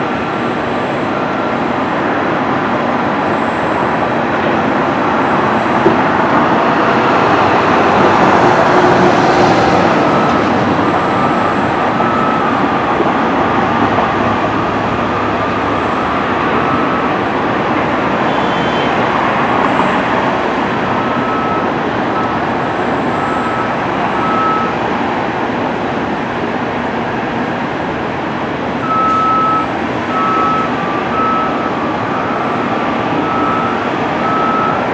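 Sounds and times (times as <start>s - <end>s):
vehicle and machinery noise: 0.0s - 34.9s
short high beeps: 10.1s - 12.6s, 23.0s - 24.8s, 28.8s - 32.7s.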